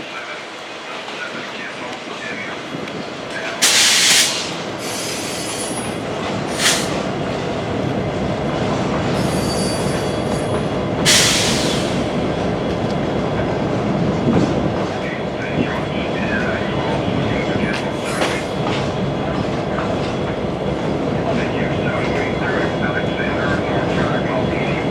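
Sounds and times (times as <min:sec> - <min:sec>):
train wheels rumbling on rail: 0:00.0 - 0:24.9
faint wheel squeal: 0:09.2 - 0:10.6.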